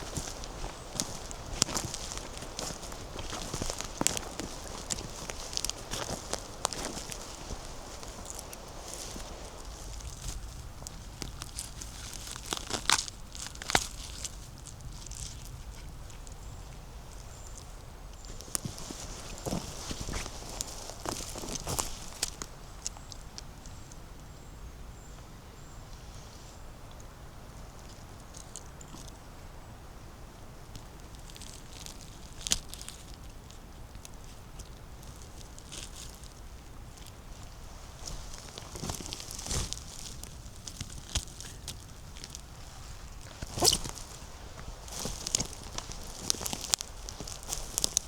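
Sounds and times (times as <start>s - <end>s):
footsteps on forest litter: 0.0s - 23.2s, 35.1s - 48.0s
twigs snapping: 0.0s - 23.5s, 30.8s - 48.0s.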